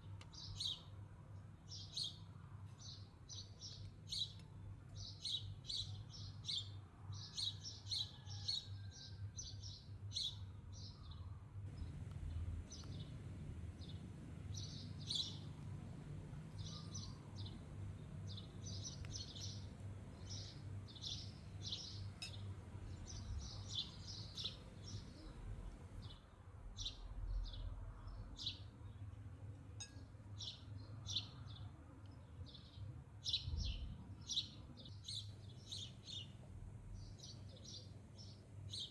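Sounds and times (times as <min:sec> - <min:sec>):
birds chirping: 0:10.8 - 0:26.2
low steady rumble: 0:11.6 - 0:28.4.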